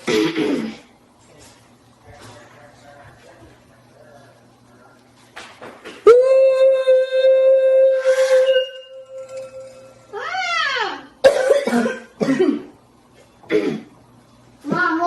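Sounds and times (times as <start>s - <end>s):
boy coughing: 0.0s - 0.9s, 11.2s - 12.8s, 13.5s - 13.9s
voiced whoop: 6.0s - 9.0s
thin ringing tone: 7.9s - 10.6s.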